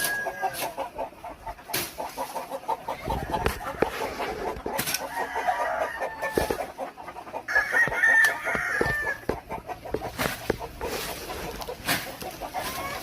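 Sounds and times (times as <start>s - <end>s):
rooster crowing: 0.0s - 0.7s, 5.0s - 6.6s, 7.5s - 9.4s
chickens clucking: 0.0s - 13.0s.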